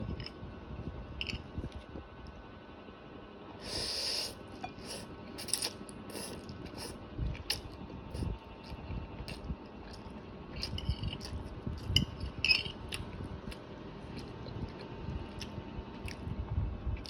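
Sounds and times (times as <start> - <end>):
hiss: 3.6 - 5.0
wet mouth eating sounds: 3.6 - 12.1, 12.8 - 16.4.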